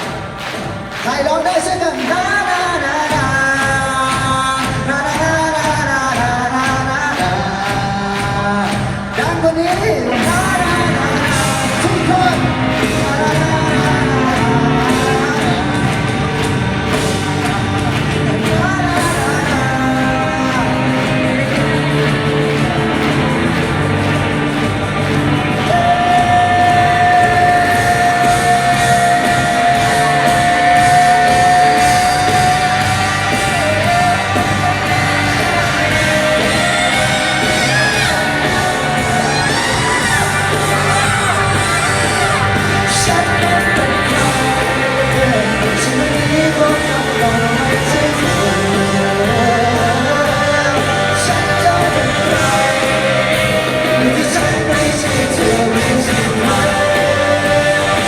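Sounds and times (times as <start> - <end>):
live rock band with singing: 0.0 - 58.0
crowd shouting: 9.9 - 58.0.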